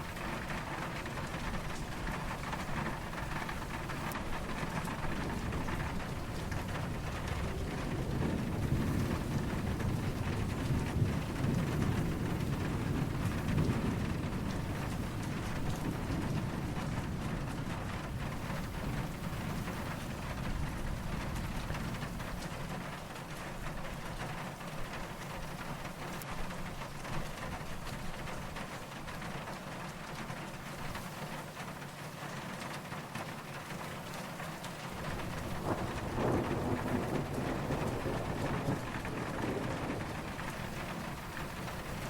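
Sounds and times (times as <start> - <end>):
distant thunder rumbling: 0.0 - 23.0, 34.3 - 42.0
steady rain falling: 0.0 - 42.0.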